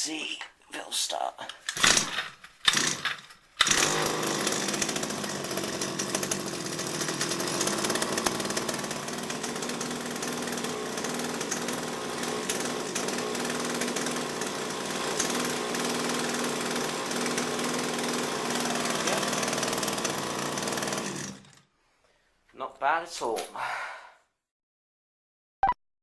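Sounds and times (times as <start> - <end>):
string trimmer engine running: 2.7 - 21.6.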